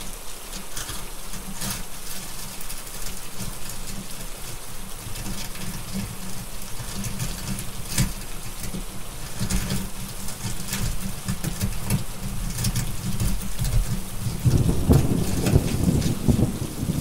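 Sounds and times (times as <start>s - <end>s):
rain falling: 0.0s - 17.0s
fire crackle pops: 12.8s - 17.0s
thunder: 14.4s - 17.0s.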